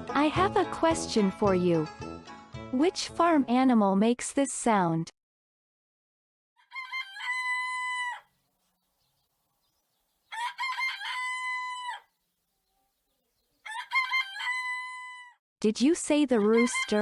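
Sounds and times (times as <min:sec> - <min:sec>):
rooster crowing: 0:06.6 - 0:08.4, 0:10.2 - 0:12.2, 0:13.6 - 0:15.4, 0:16.5 - 0:17.0.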